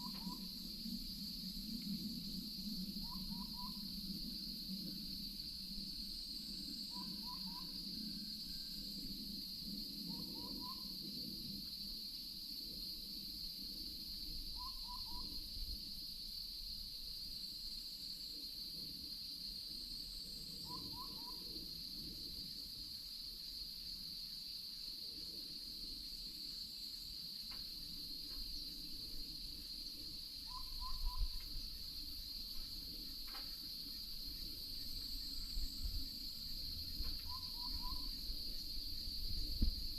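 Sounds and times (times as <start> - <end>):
insect drone: 0.0 - 39.9
animal whistled call: 3.0 - 3.8, 6.9 - 7.7, 14.6 - 15.3, 20.6 - 21.4, 30.4 - 31.4, 37.2 - 38.2.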